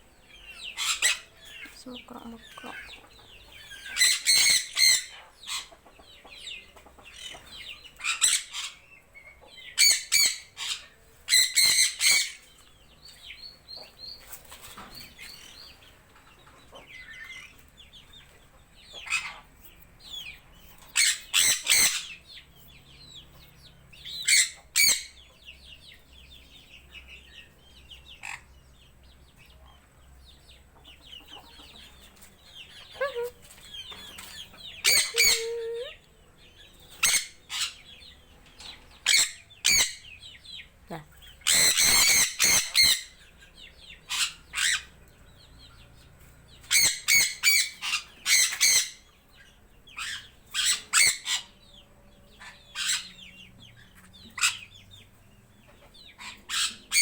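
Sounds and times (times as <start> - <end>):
faint bird chirping and chatter: 0.0 - 57.0
birds calling in shrill bursts: 34.8 - 35.9, 41.4 - 43.1.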